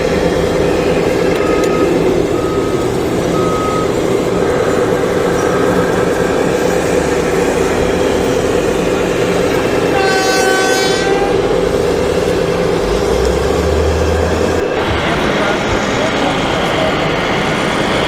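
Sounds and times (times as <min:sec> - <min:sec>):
steady mechanical running: 0:00.0 - 0:10.5, 0:11.2 - 0:18.0
horn sounding: 0:09.2 - 0:11.7.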